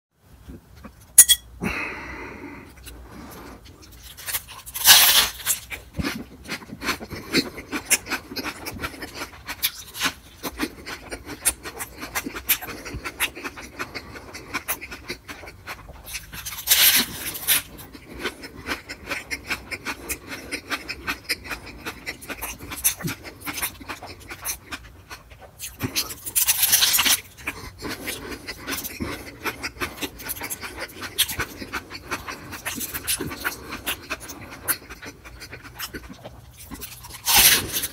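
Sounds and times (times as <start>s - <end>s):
wet chewing: 1.8s - 37.9s
loud bite: 25.6s - 37.9s.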